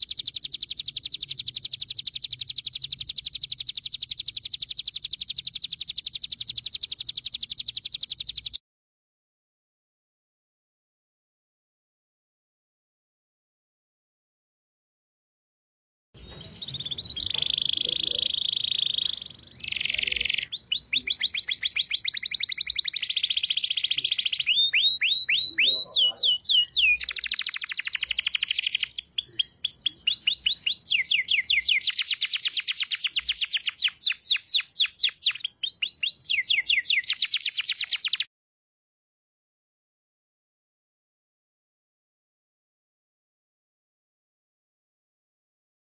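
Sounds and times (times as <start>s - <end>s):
songbird singing fast trills: 0.0s - 8.6s, 16.2s - 38.3s.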